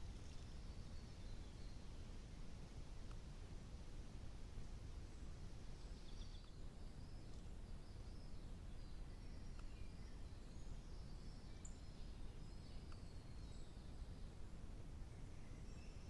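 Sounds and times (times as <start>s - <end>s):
faint birdsong: 0.0s - 16.0s
low background hiss: 0.0s - 16.0s
faint ticks: 3.0s - 3.2s, 7.2s - 7.5s, 9.5s - 9.8s, 12.8s - 13.1s.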